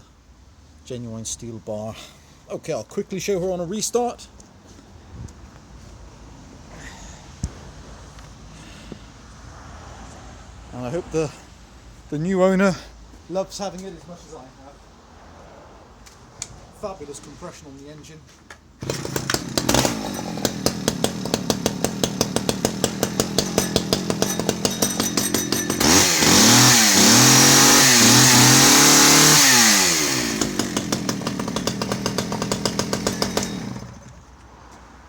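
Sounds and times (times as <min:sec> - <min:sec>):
chainsaw idling and revving: 0:18.8 - 0:34.3.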